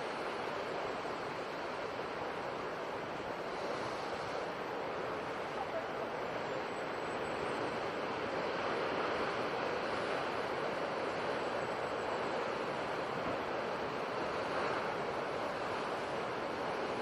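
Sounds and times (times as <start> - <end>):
sea surf washing: 0.0 - 17.0.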